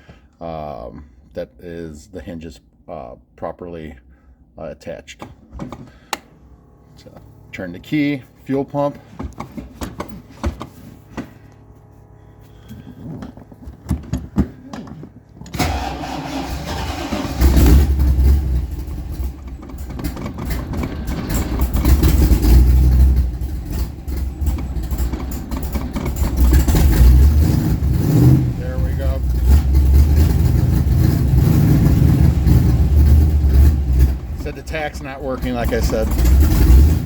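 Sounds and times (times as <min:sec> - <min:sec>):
fuel pump clicks: 0:05.2 - 0:06.3
fuel pump humming: 0:05.2 - 0:37.0
car engine running loudly: 0:15.6 - 0:37.0.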